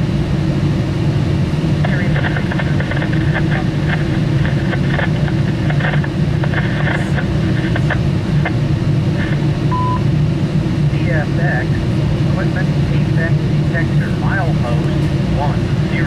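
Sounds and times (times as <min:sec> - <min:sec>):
train engine drone: 0:00.0 - 0:16.0.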